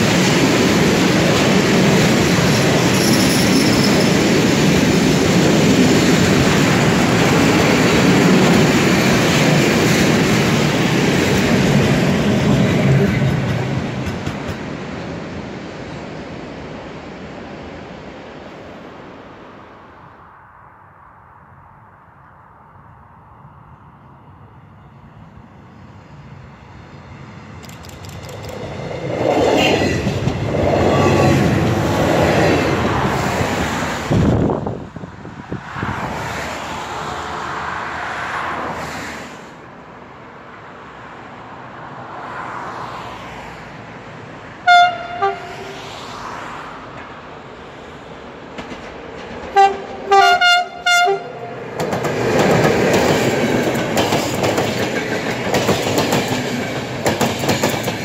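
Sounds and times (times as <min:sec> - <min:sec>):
diesel railcar passing: 0:00.0 - 0:58.0
wheel and rail noise: 0:00.0 - 0:58.0
locomotive horn blasts: 0:44.6 - 0:45.8, 0:49.6 - 0:51.5.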